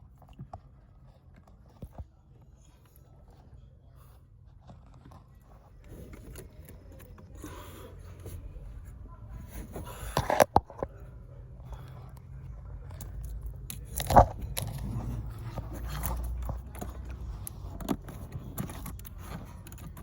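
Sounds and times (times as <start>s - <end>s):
low steady hum: 0.0s - 20.0s
scraping and rustling: 0.0s - 20.0s.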